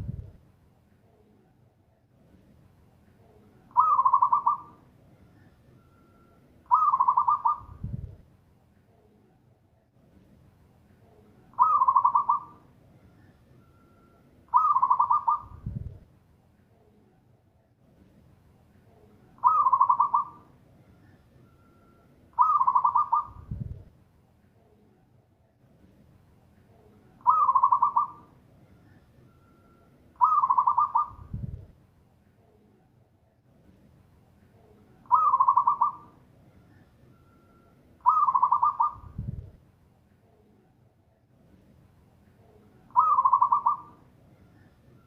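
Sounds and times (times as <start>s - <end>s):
dove rolling coos: 3.7s - 4.8s, 6.7s - 7.7s, 11.6s - 12.6s, 14.5s - 15.5s, 19.4s - 20.5s, 22.4s - 23.4s, 27.2s - 28.3s, 30.2s - 31.3s, 35.1s - 36.1s, 38.0s - 39.1s, 42.9s - 44.0s.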